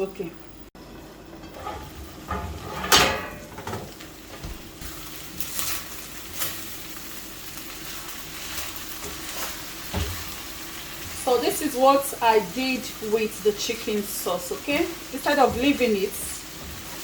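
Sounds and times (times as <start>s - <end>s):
food sizzling in a pot: 0.8s - 17.0s
spoon scraping a pot: 1.4s - 3.1s.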